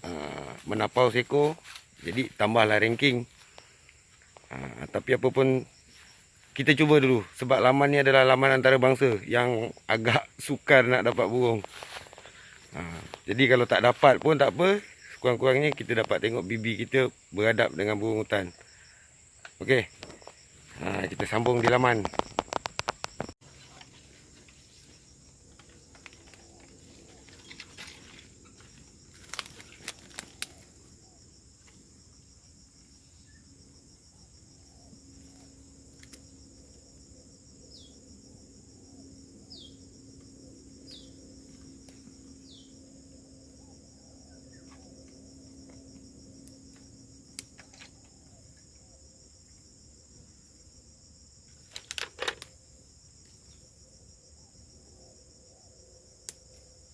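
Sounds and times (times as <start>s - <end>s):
insects chirring: 0.0s - 56.9s
cluster of clicks: 21.4s - 23.4s, 29.1s - 30.7s, 51.6s - 52.6s.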